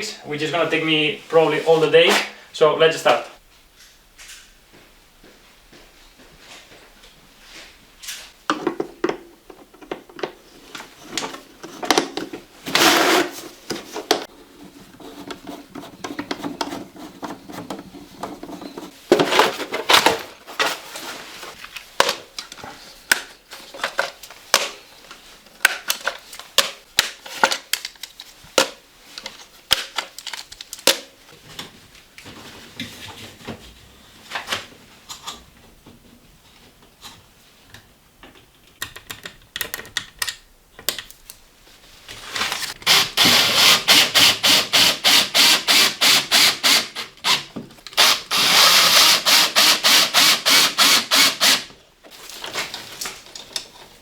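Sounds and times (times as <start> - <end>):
scraping and rustling: 10.3 - 25.4, 52.1 - 54.0.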